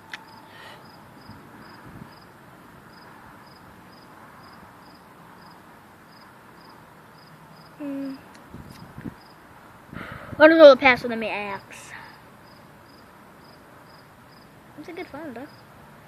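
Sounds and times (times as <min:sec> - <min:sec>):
cricket chirping: 0:00.0 - 0:07.8, 0:08.7 - 0:09.4, 0:11.5 - 0:15.7
faint background hiss: 0:00.0 - 0:16.0.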